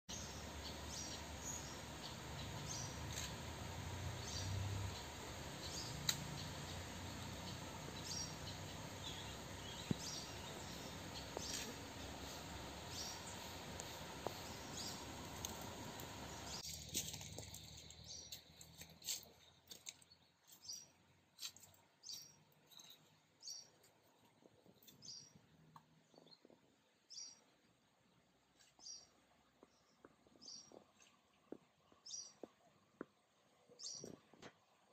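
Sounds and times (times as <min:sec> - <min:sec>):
bird chirping: 0:00.1 - 0:03.4, 0:04.2 - 0:21.0, 0:22.0 - 0:23.9.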